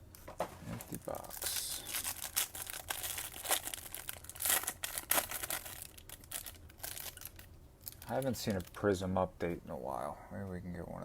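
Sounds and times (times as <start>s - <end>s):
plastic wrapper crinkling and tearing: 0.7s - 8.9s.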